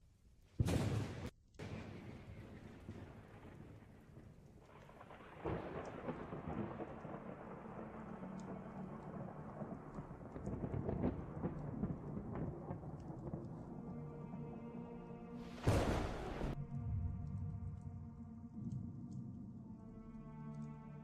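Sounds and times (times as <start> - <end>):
thunder rumbling: 0.6 - 14.1, 15.4 - 17.9
rain: 1.6 - 21.0.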